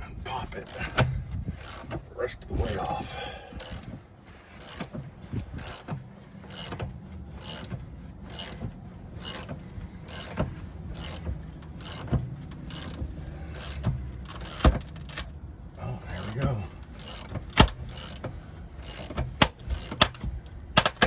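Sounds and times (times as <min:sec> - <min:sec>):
tire bead breaker strokes: 0:00.4 - 0:21.0.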